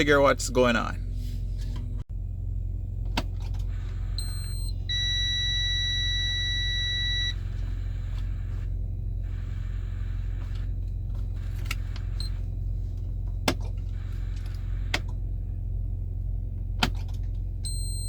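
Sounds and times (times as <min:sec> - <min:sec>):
steady low rumble: 0:00.0 - 0:18.0
dashboard warning buzzer beeping: 0:03.6 - 0:12.6, 0:17.6 - 0:18.0.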